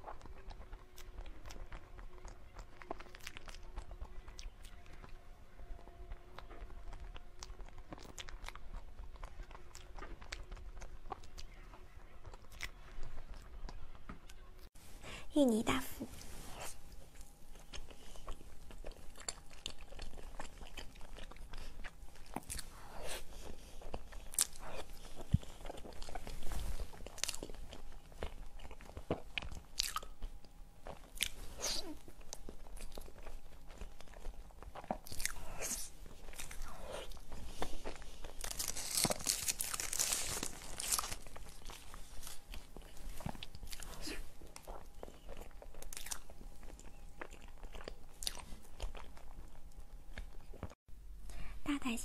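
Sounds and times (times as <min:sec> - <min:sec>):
chewing and mouth smacking: 0:00.0 - 0:05.2, 0:06.0 - 0:14.4, 0:16.9 - 0:50.8
plastic wrapper crinkling: 0:38.3 - 0:42.3.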